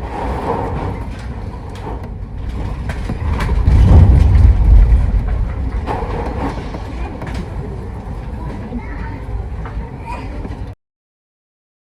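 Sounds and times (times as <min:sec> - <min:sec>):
ferry rumbling at sea: 0:00.0 - 0:10.8.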